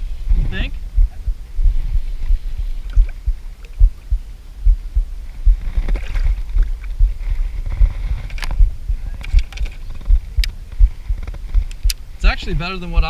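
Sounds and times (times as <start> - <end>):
thumps and rumble on microphone: 0.0 - 13.0
sharp clicks: 8.3 - 12.0.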